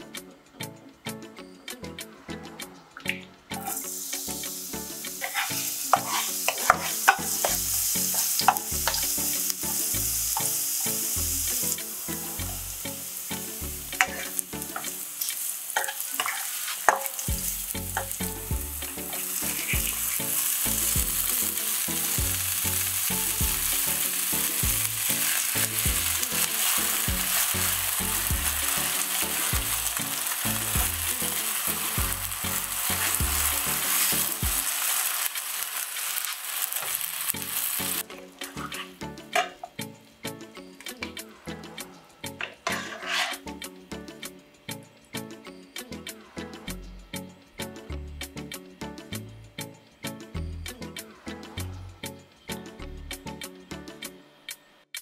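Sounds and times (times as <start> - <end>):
garlic and mushrooms sizzling in oil: 3.5 - 40.0, 42.3 - 43.7
spatula clicking against pan: 5.2 - 9.0.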